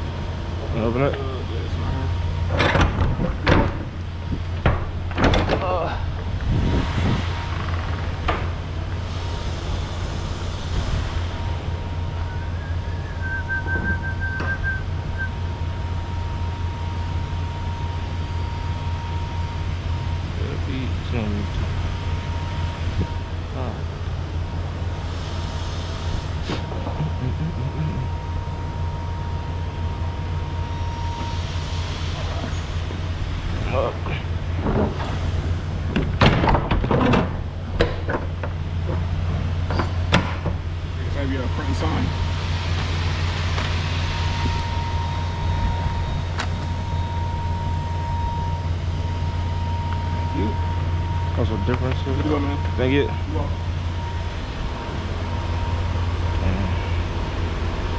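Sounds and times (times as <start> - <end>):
diesel engine idling: 0.0 - 36.2, 37.3 - 57.9
sharp knocks and clunks: 2.5 - 4.0, 35.9 - 39.0
high wavering whistle: 11.5 - 19.6, 41.5 - 56.9.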